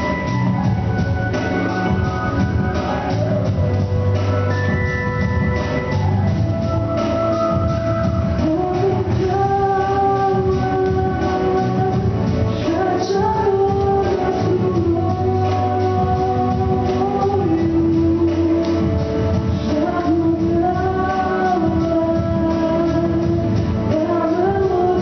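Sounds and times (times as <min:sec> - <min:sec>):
backing track with drum beat: 0:00.0 - 0:25.0
girl singing: 0:08.4 - 0:19.0, 0:19.6 - 0:25.0.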